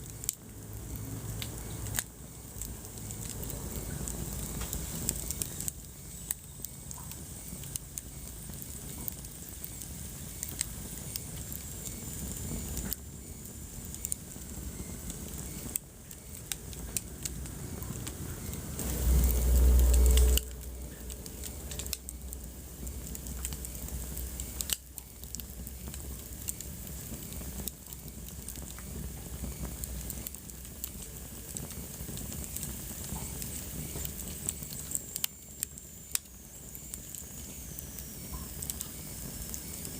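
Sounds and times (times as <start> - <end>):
wood fire crackling: 0.0 - 39.9
loud low rumble: 17.4 - 24.3.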